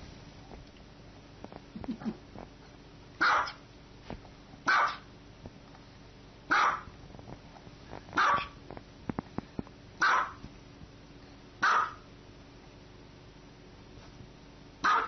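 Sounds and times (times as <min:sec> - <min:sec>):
small dog barking: 0:03.2 - 0:03.6, 0:04.6 - 0:05.1, 0:06.5 - 0:06.9, 0:08.2 - 0:08.6, 0:10.0 - 0:10.4, 0:11.6 - 0:12.1, 0:14.8 - 0:15.0.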